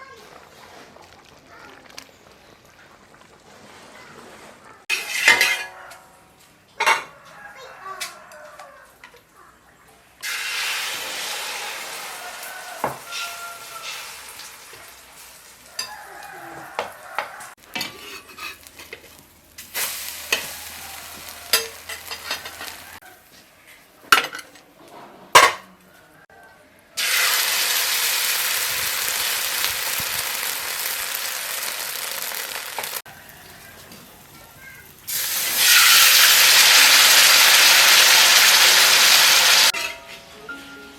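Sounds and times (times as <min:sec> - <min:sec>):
food sizzling in hot oil: 0:10.2 - 0:23.0, 0:27.0 - 0:33.1, 0:34.7 - 0:39.8.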